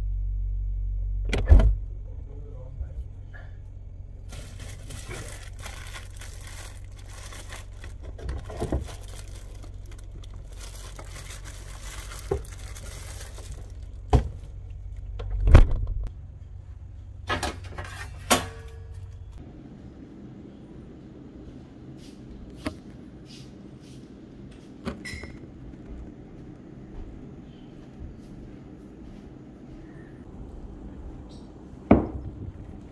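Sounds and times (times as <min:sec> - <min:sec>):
refrigerator hum: 0:00.0 - 0:32.9
plastic packaging crinkling: 0:04.2 - 0:14.1.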